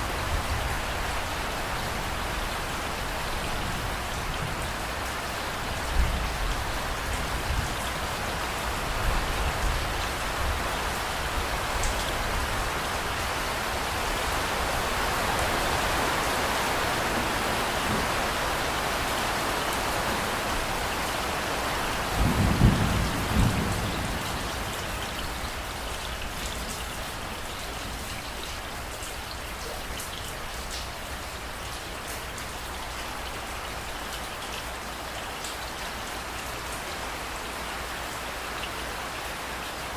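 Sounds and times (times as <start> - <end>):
steady rain falling: 0.0 - 39.9
clap of thunder: 22.2 - 24.5.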